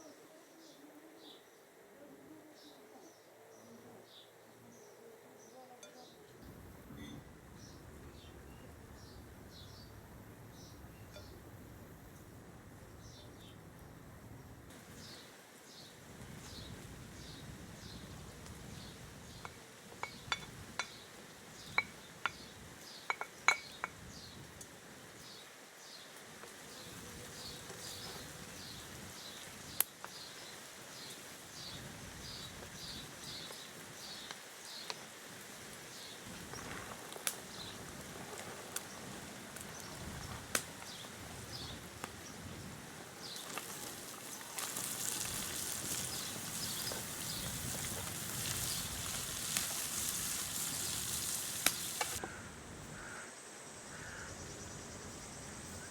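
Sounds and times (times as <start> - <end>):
dishes and utensils clinking: 20.0 - 21.0, 23.1 - 24.0
hiss: 43.2 - 52.2.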